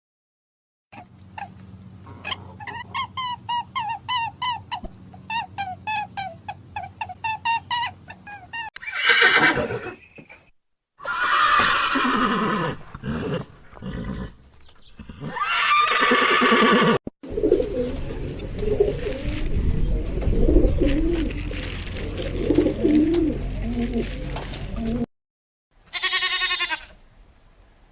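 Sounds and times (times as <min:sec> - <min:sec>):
horse neighing: 0:08.8 - 0:10.1, 0:11.0 - 0:14.4, 0:15.0 - 0:17.0
pigeons cooing: 0:12.0 - 0:25.1.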